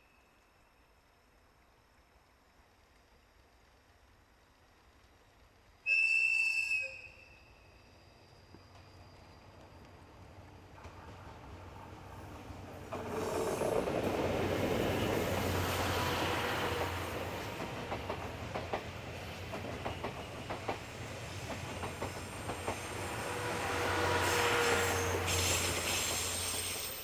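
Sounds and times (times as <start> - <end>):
train passing: 2.8 - 27.0
wheels clicking over rail joints: 12.4 - 15.6, 16.8 - 22.9.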